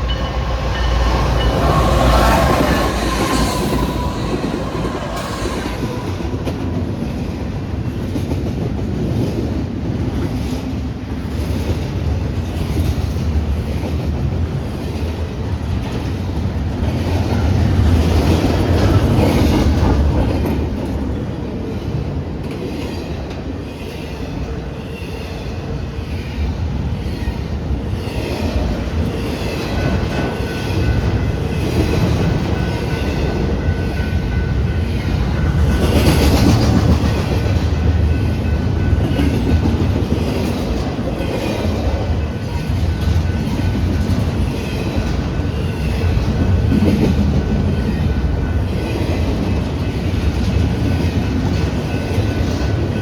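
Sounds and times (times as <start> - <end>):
high wheel squeal: 0.0 - 7.1.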